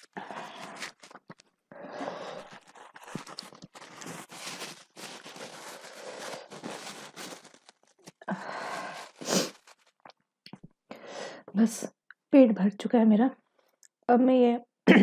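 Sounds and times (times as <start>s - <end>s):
crunching and chewing food: 0.0s - 10.2s.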